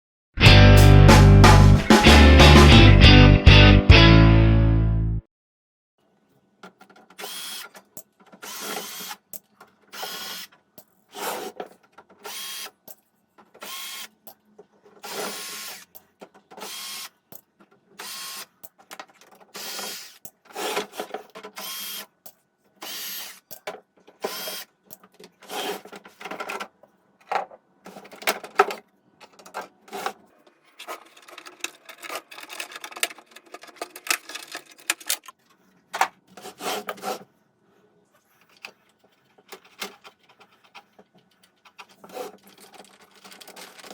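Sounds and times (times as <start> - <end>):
hand tool scraping and rattling: 27.9 - 35.4, 36.3 - 37.3, 38.4 - 43.9.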